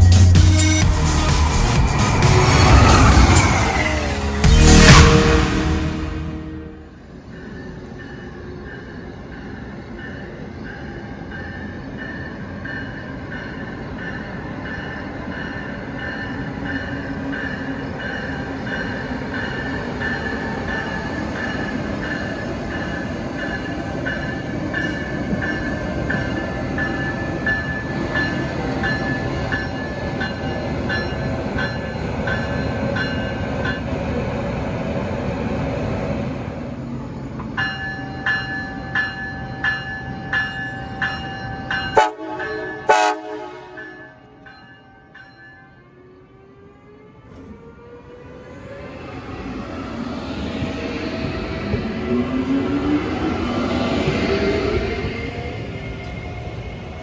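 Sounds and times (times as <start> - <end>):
train rumble: 0.0 - 44.6, 45.9 - 57.0
train bell ringing: 6.9 - 34.2, 37.5 - 46.1.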